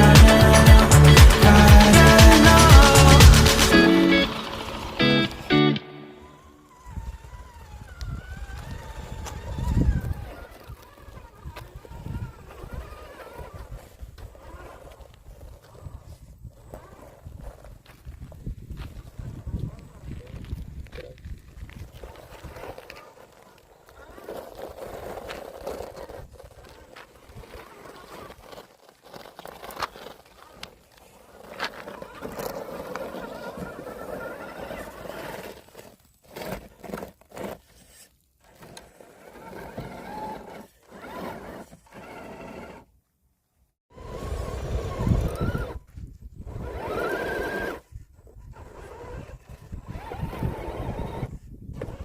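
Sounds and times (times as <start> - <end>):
small motor humming: 0.0 - 17.6, 31.3 - 35.9, 38.4 - 42.9, 43.9 - 52.0
tyres crackling over rough ground: 6.3 - 43.1, 43.9 - 52.0.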